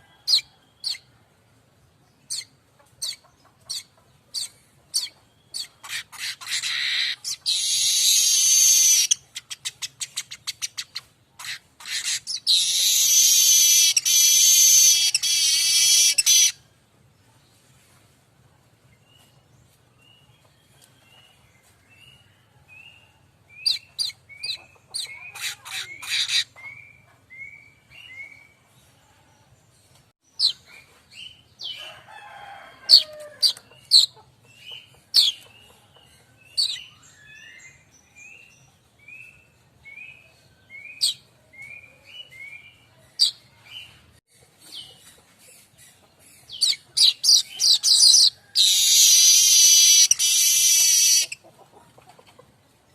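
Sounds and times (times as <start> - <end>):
bird chirping and chattering: 2.3 - 16.6, 23.6 - 26.9, 33.5 - 37.5, 44.3 - 51.4.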